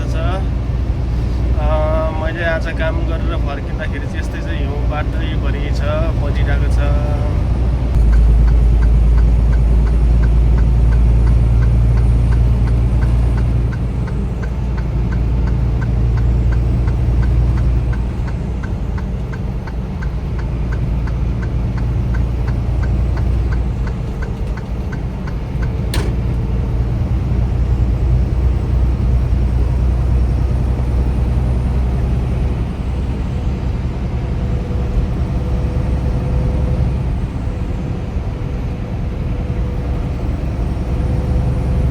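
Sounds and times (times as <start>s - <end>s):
car driving rumble: 0.0s - 41.9s
turn signal ticking: 7.9s - 26.6s
sharp click: 25.9s - 26.4s.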